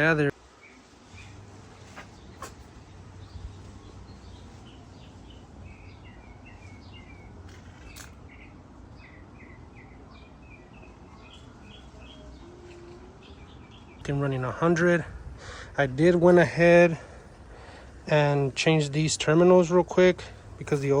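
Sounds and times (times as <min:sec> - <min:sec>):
small birds chirping: 0:00.1 - 0:21.0.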